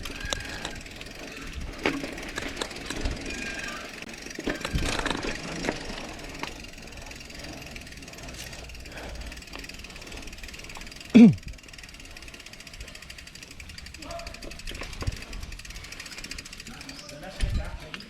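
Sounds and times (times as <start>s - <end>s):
bike squeaks: 0.0s - 18.0s
mountain bike rattling on trail: 0.0s - 18.0s.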